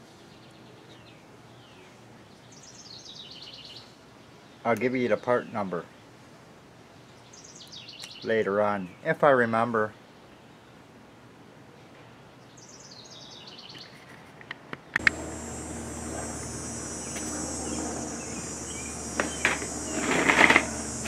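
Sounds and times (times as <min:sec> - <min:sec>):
sharp clicks: 0:14.9 - 0:15.3
bird chirping: 0:15.0 - 0:21.0
low hum: 0:15.0 - 0:21.0
steady high hiss: 0:15.0 - 0:21.0.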